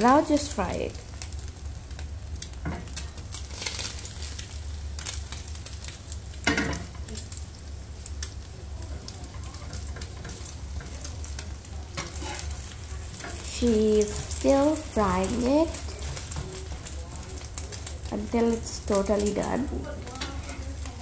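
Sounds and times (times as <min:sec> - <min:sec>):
food sizzling in oil: 0:00.0 - 0:21.0
metal spatula scraping pan: 0:12.0 - 0:16.9.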